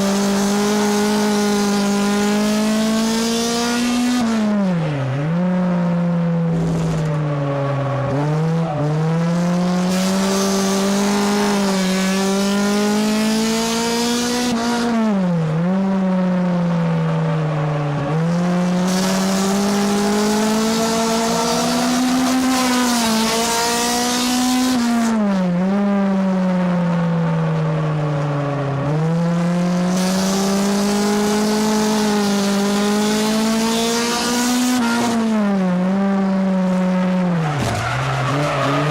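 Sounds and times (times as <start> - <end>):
race car engine revving: 0.0 - 38.9
tire squeal: 37.1 - 38.9.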